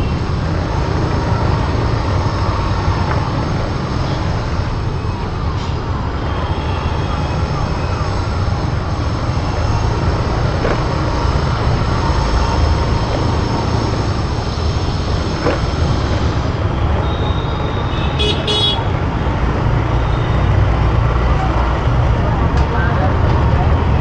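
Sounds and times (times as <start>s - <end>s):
road traffic rumble: 0.0s - 24.0s
wind: 0.0s - 24.0s
vehicle horn honking: 17.2s - 18.9s.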